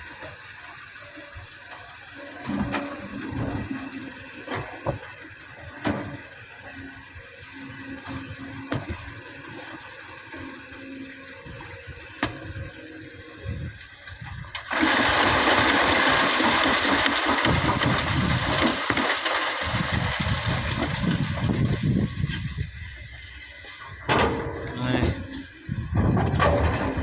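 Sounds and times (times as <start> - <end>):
heavy machinery running: 0.0 - 27.0
sand dumped into truck bed: 14.6 - 22.4.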